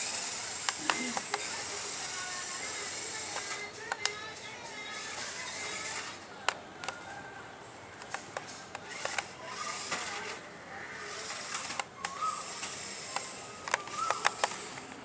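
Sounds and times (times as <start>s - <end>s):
toy truck motor whirring: 0.0s - 6.3s, 8.0s - 15.0s.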